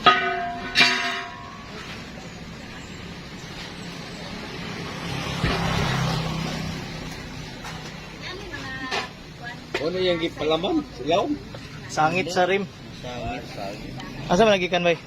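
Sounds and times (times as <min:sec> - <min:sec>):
metal clanks: 0:00.0 - 0:02.1.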